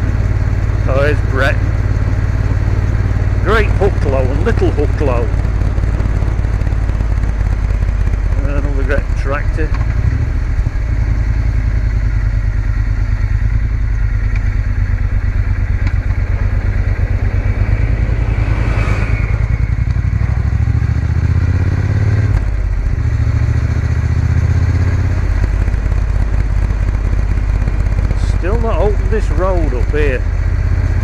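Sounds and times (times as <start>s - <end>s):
motorcycle engine running: 0.0s - 31.0s
wind rush: 16.2s - 21.7s
brief whooshing rush: 17.0s - 20.6s.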